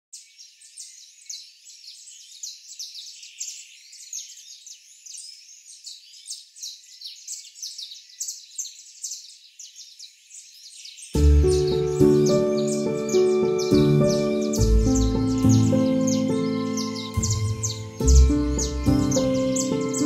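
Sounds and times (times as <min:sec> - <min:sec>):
birds chirping and singing: 0:00.2 - 0:20.0.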